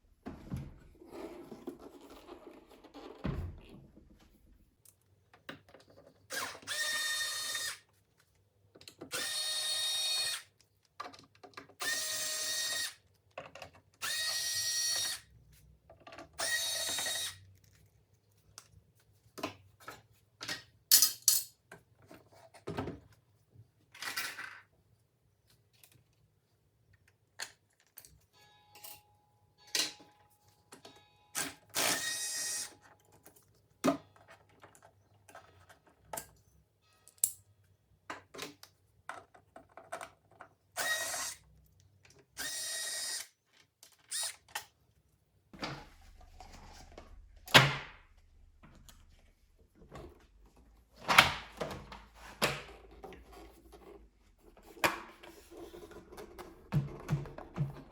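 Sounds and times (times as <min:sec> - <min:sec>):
small electric motor whirring: 0:42.4 - 0:43.3.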